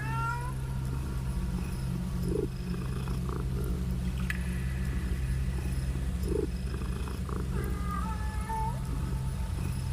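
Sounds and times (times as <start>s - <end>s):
cat purring: 0.9s - 4.0s, 4.9s - 9.9s.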